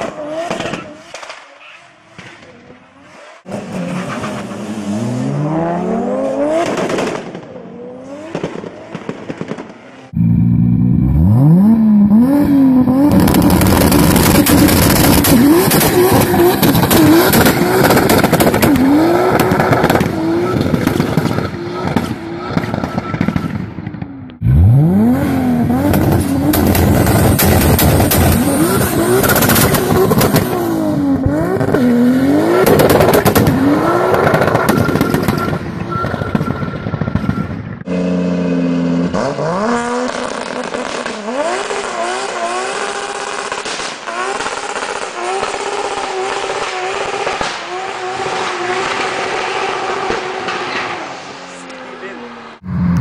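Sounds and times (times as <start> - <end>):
exhaust crackles and pops: 8.3 - 10.8, 12.1 - 24.6, 25.6 - 31.9, 32.6 - 37.9, 39.8 - 50.9
car engine revving hard: 10.2 - 23.1, 24.4 - 35.3, 37.9 - 51.0.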